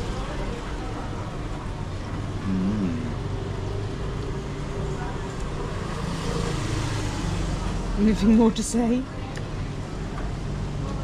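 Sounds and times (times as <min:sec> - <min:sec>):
street traffic hum: 0:00.0 - 0:11.0
background voices: 0:02.4 - 0:03.2
brief vocal sound: 0:02.4 - 0:03.3.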